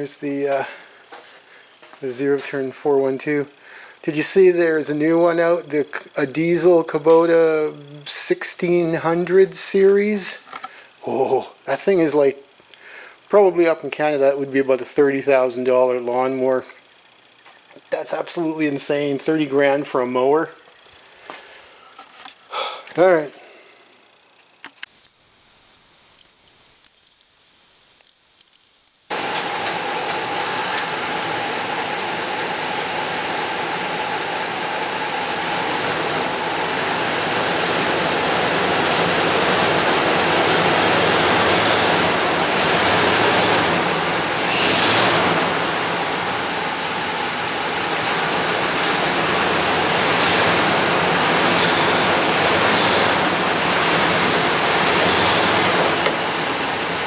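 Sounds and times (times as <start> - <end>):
engine noise with rushing hiss: 28.9 - 57.0.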